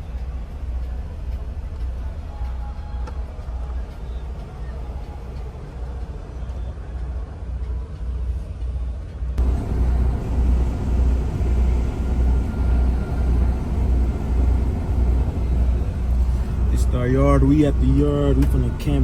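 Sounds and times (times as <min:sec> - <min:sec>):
road and engine noise: 0:00.0 - 0:19.0
diesel truck engine rumbling: 0:09.4 - 0:19.0.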